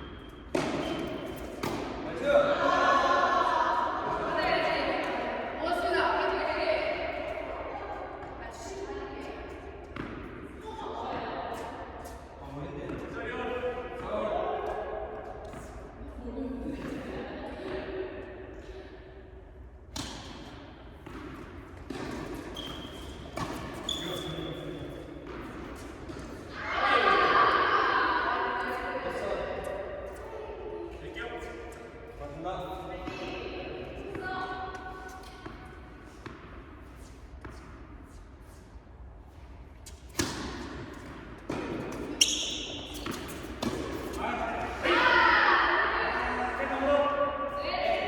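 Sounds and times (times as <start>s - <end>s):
shoe squeaks: 0.0s - 1.6s, 22.2s - 25.1s, 42.0s - 44.2s
tennis court noise: 0.0s - 48.0s
tennis racket hitting ball: 0.5s - 2.1s, 39.9s - 44.2s.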